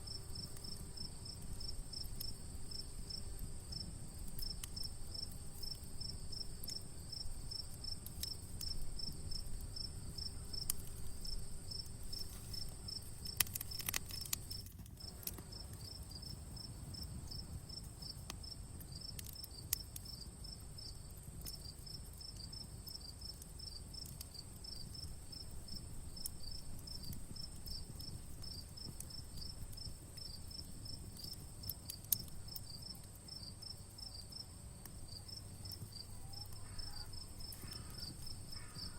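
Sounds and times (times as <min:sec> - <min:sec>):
campfire crackling: 0:00.0 - 0:38.9
crickets chirping: 0:00.0 - 0:38.9
high insect drone: 0:35.1 - 0:38.9.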